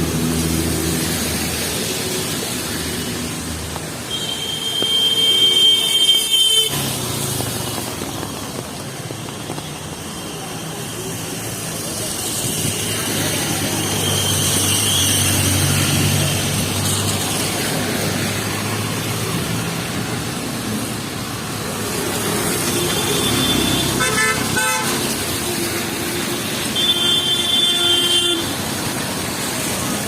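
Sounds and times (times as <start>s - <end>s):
heavy rain: 0.0s - 30.0s
tyres on wet road: 0.0s - 30.0s
car horns honking: 22.8s - 25.1s.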